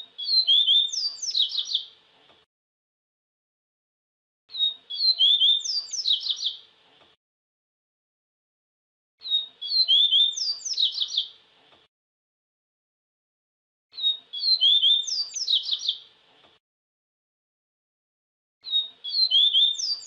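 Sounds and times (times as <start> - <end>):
seedeater bird singing: 0.0 - 2.0, 4.5 - 6.7, 9.2 - 11.4, 13.9 - 16.1, 18.6 - 20.0.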